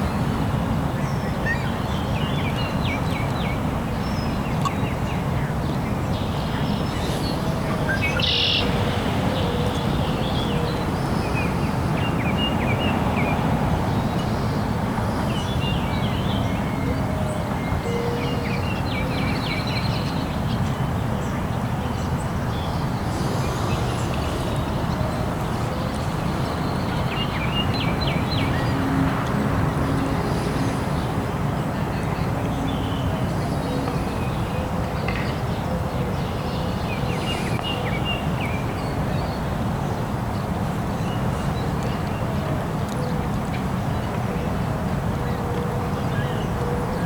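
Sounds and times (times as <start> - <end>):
birds chirping: 4.3 - 16.7, 21.3 - 39.4.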